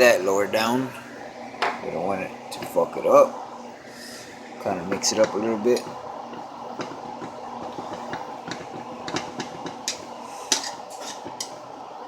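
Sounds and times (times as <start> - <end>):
steady background hiss: 0.0 - 12.0
utensil stirring sauce in pan: 4.1 - 11.9.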